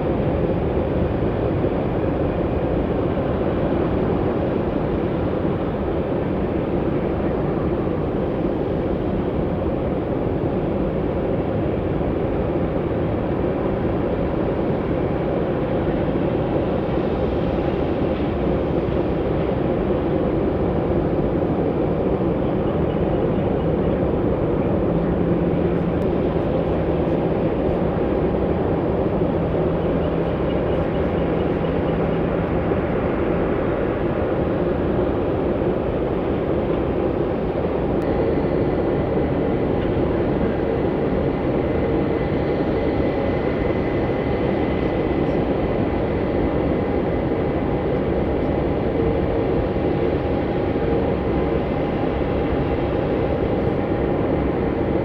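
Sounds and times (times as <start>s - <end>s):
jet engine noise: 0.0s - 55.0s.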